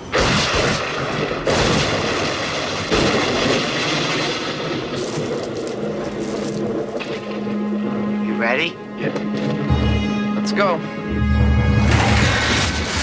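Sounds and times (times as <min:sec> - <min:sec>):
continuous rumbling roar: 0:00.0 - 0:13.0
loud booming crashes: 0:00.1 - 0:06.0, 0:11.5 - 0:13.0.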